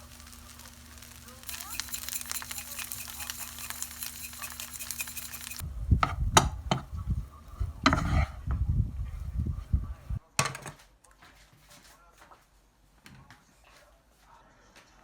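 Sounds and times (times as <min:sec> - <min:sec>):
cooking hiss: 0:00.0 - 0:06.8
small clinks: 0:00.6 - 0:05.6
cookware knocks and thuds: 0:06.0 - 0:06.9, 0:10.4 - 0:10.8.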